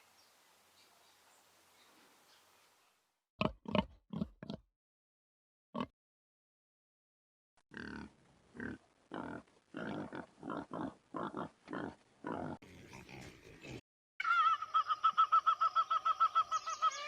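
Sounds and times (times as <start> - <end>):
pig grunting: 7.7 - 13.8.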